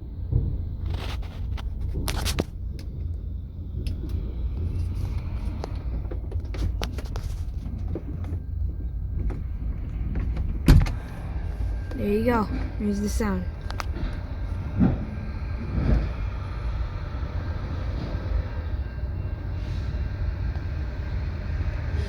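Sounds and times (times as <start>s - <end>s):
low vehicle rumble: 0.0s - 22.0s.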